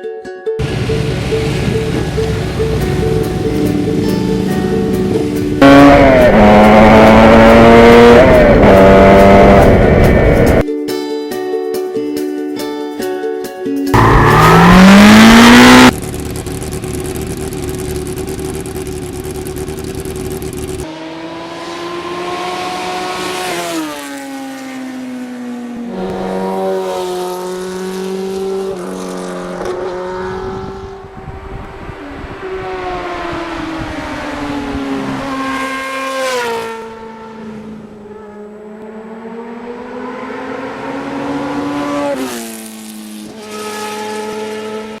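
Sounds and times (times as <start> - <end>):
motorcycle engine revving: 0.6 - 10.6, 14.0 - 45.0
wind noise: 7.9 - 10.6, 29.9 - 35.4.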